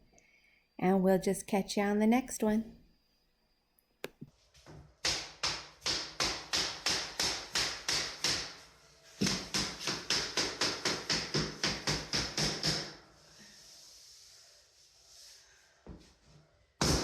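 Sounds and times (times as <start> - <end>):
hammer strikes: 5.0 - 8.6, 9.2 - 12.9.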